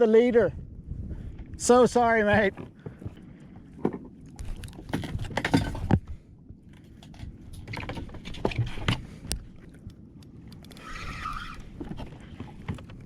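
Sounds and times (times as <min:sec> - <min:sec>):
fishing gear handling noise: 0:02.6 - 0:13.0.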